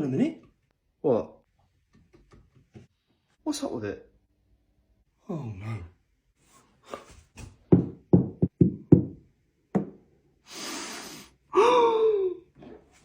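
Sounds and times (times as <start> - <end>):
breathy hiss: 10.4 - 11.4.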